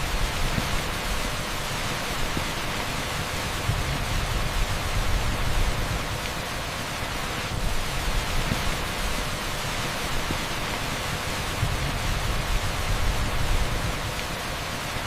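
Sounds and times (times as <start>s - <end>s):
heavy rain on asphalt: 0.0s - 15.0s.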